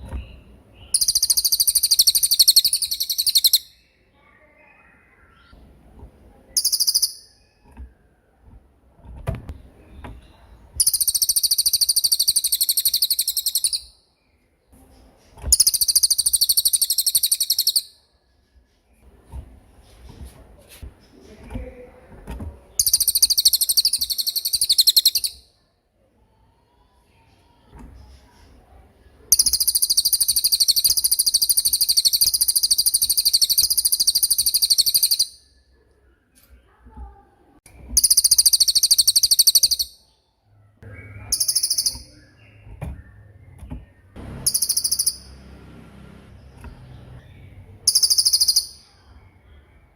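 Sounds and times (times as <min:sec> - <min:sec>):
songbird high-pitched trills: 0:00.8 - 0:05.5, 0:06.5 - 0:07.6, 0:10.8 - 0:14.0, 0:15.5 - 0:18.0, 0:22.8 - 0:25.6, 0:29.3 - 0:35.5, 0:38.0 - 0:40.2, 0:40.9 - 0:43.4, 0:44.4 - 0:45.4, 0:47.2 - 0:49.5.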